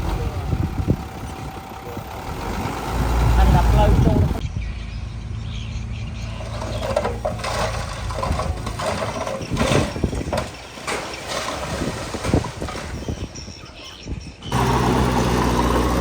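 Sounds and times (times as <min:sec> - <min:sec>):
diesel engine running: 0:00.0 - 0:10.4, 0:14.5 - 0:16.0
metal clanks and scraping: 0:06.3 - 0:13.2.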